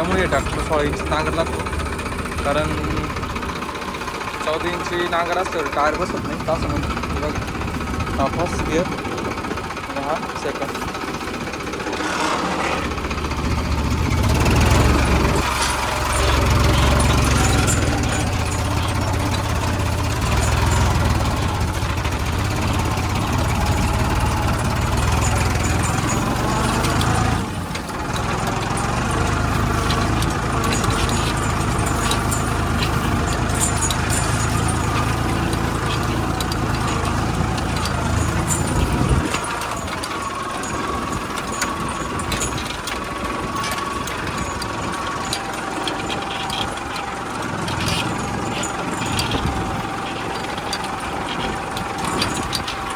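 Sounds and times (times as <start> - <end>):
tractor diesel engine rumbling: 0.0 - 52.9.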